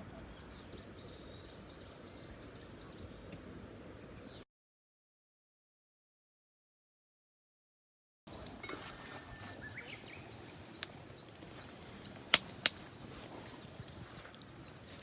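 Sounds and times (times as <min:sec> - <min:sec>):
bird chirping: 0:08.3 - 0:15.0
sharp clicks: 0:12.0 - 0:12.9.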